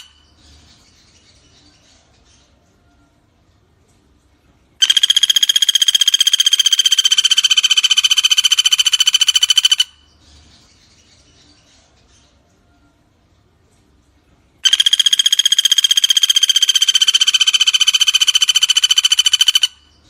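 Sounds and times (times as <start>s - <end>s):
woodpecker rattling call: 0.0s - 0.4s, 4.8s - 10.1s, 14.6s - 20.0s.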